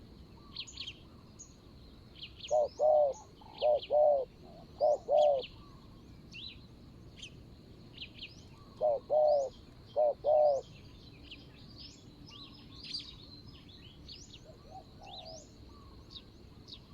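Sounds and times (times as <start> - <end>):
small birds chirping: 0.4 - 16.9
dove cooing: 2.5 - 5.6, 8.6 - 10.7, 14.4 - 16.0.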